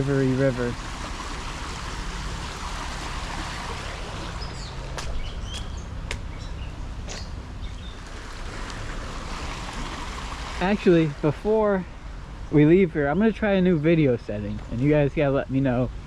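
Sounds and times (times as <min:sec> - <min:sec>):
river water rushing: 0:00.0 - 0:11.3
bird chirping: 0:03.8 - 0:08.0.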